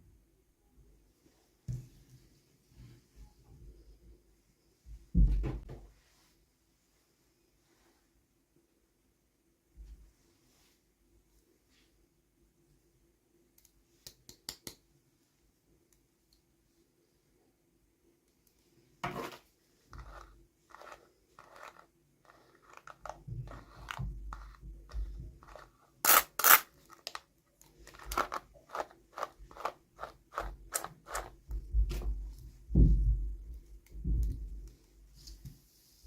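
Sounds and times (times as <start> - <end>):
toy packaging tearing: 26.0 - 31.3
dull low knocks: 31.7 - 34.4.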